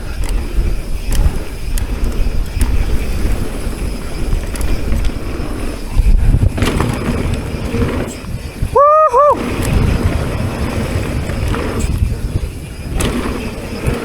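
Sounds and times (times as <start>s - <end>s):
bike clicks and rattles: 0.0s - 14.0s
tyres rumbling over ground: 0.0s - 14.0s
wind rushing over microphone: 0.0s - 14.0s.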